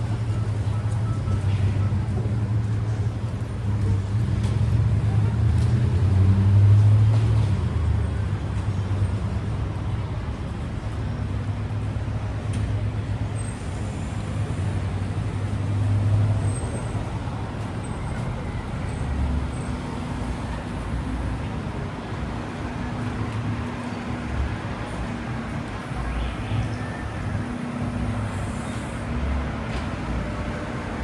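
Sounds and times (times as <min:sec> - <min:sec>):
heavy low engine rumble: 0:00.0 - 0:31.0
passing vehicles: 0:00.0 - 0:31.0.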